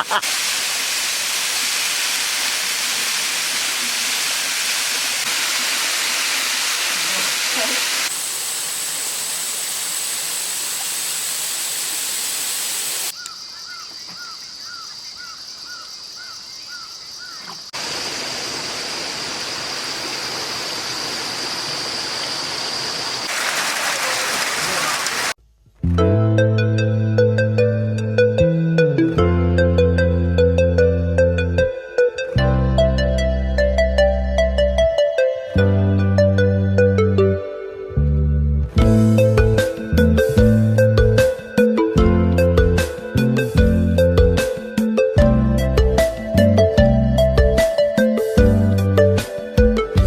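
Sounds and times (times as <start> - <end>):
waterfall rushing: 0.0 - 12.7, 23.0 - 25.4.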